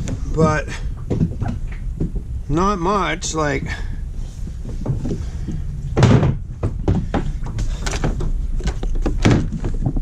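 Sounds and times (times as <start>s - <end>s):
steady low rumble: 0.0s - 10.0s
loud thud: 5.9s - 8.4s
knocks of kayak hatch and gear: 6.0s - 10.0s.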